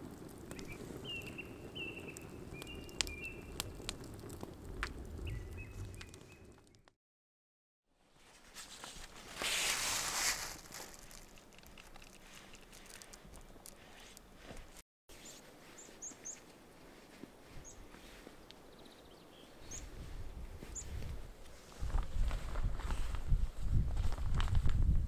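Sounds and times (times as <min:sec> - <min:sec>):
small birds chirping: 0:00.5 - 0:04.1, 0:05.2 - 0:06.9, 0:15.2 - 0:16.5, 0:17.4 - 0:20.1.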